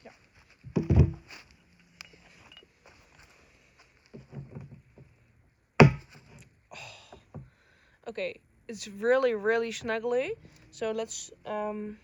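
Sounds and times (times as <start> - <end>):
sharp loud knock: 5.8 - 6.1.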